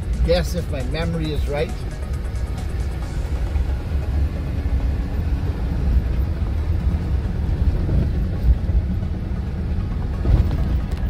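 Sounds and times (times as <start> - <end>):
vehicle rumbling on dirt road: 0.0 - 11.0
vehicle jolts: 5.2 - 11.0.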